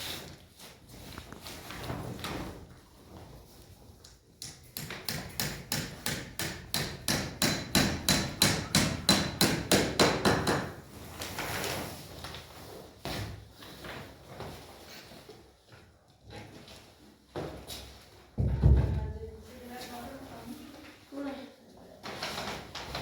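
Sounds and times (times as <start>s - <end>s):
hammering: 4.4s - 10.8s.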